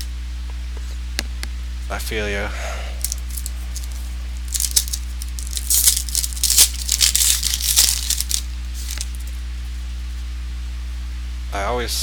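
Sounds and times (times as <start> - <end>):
low electrical hum: 0.0 - 12.0
trading cards rustling and clicking: 3.0 - 9.4.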